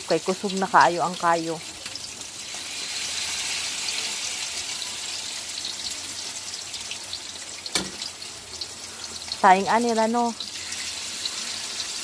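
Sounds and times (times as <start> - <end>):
egg frying in hot oil: 0.0 - 12.0.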